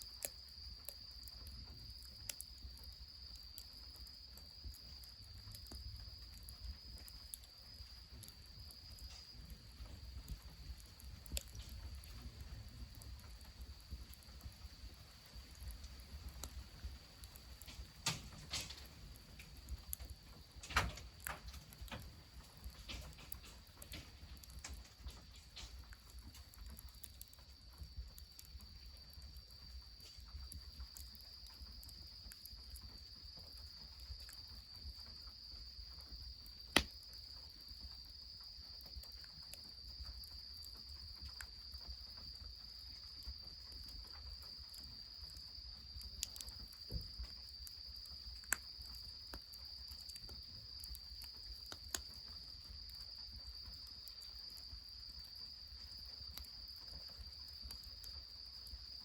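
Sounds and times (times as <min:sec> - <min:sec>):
insects trilling: 0:00.0 - 0:59.0
sharp snaps: 0:36.7 - 0:37.1.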